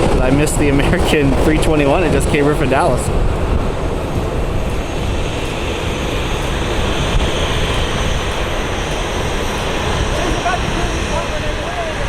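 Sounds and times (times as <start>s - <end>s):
jet airliner engine rush: 0.0s - 12.0s.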